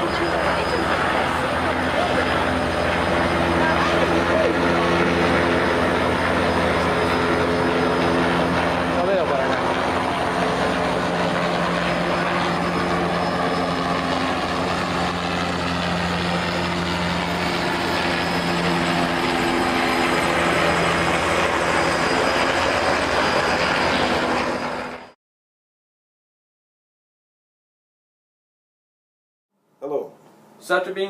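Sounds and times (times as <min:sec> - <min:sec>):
loud mechanical drone: 0:00.0 - 0:25.2.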